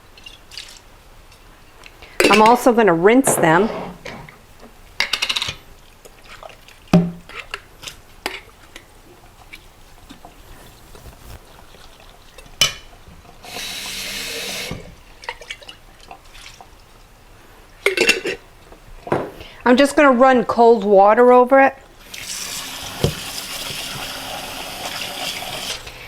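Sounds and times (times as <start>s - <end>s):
tap water running into sink: 11.4s - 16.8s, 22.0s - 25.8s.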